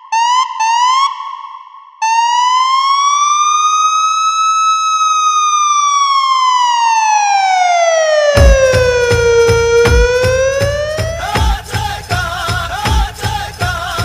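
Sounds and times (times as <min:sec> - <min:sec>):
police siren whoops and wail: 0:00.1 - 0:01.2, 0:02.0 - 0:11.4.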